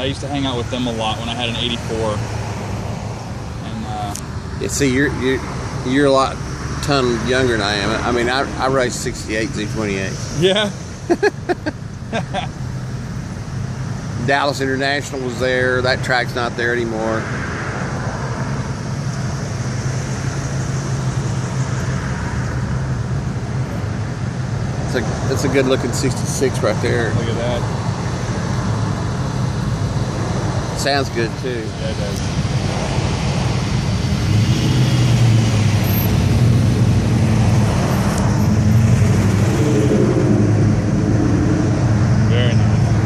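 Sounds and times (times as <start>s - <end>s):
car engine passing: 0.0s - 43.0s.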